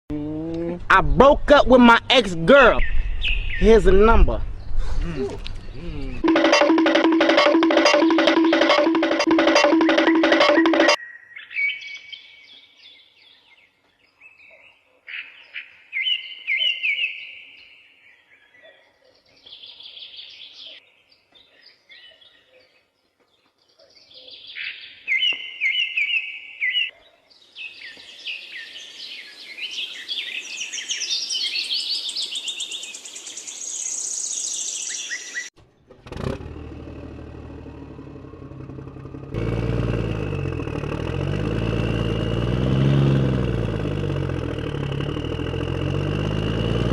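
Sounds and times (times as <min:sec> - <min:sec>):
birds chirping and calling: 0:02.5 - 0:06.3, 0:11.0 - 0:35.5
motor hum: 0:35.9 - 0:46.9.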